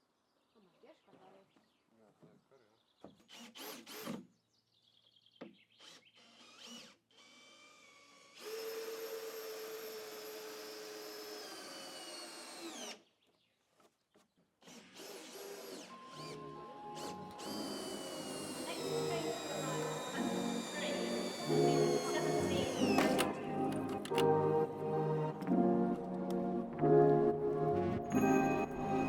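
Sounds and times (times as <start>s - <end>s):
cordless drill running: 3.3s - 4.2s, 5.8s - 13.1s, 14.6s - 24.2s.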